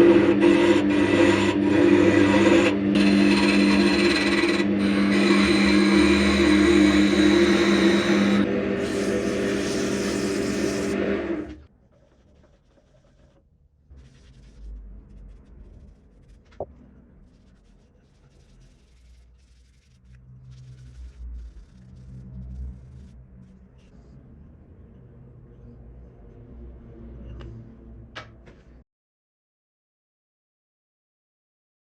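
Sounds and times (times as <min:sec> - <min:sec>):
wood lathe motor running: 0:00.0 - 0:12.1
rubbing and scraping on wood: 0:00.4 - 0:11.0, 0:11.8 - 0:23.2.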